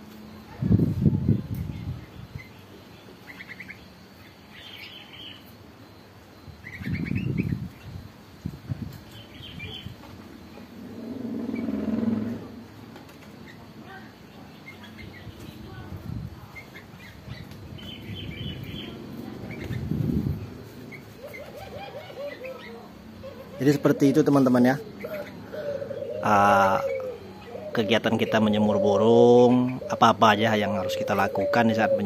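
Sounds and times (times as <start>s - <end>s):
caged birds chirping: 0.0s - 32.0s
low hum: 5.4s - 23.6s.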